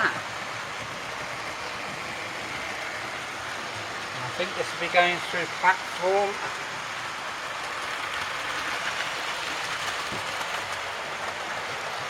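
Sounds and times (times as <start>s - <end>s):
model train rolling whir: 0.0s - 12.0s.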